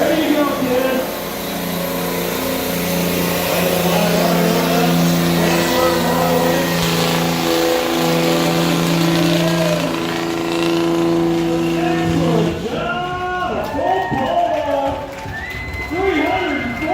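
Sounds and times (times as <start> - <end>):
diesel truck engine at high revs: 1.3 - 12.7.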